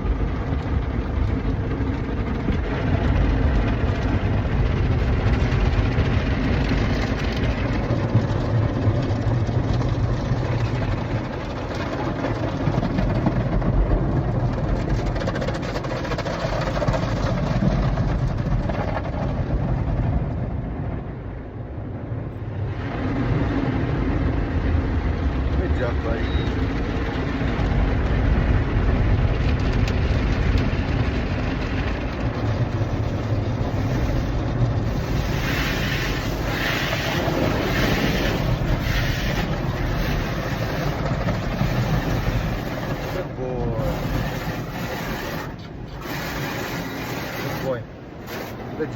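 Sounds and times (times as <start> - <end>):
car wash spraying water: 0.0 - 19.6, 21.8 - 48.9
spinning brushes on car: 30.0 - 48.9.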